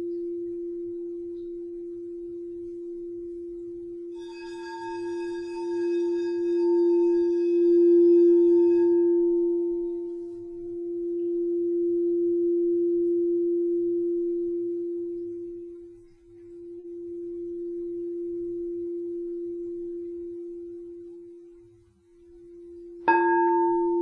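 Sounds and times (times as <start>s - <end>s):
singing bowl low tone: 0.0s - 24.0s.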